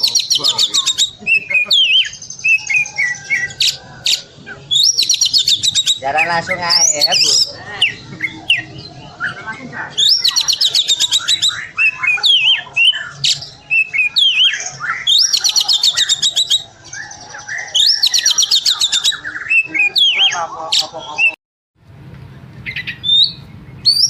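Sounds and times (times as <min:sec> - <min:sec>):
bird singing: 0:00.0 - 0:21.4, 0:22.2 - 0:24.0.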